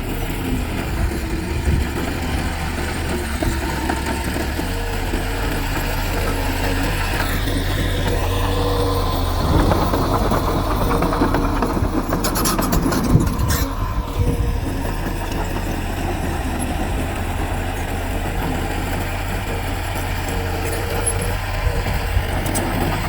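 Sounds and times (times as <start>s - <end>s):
heavy machinery diesel engines: 0.0s - 23.0s.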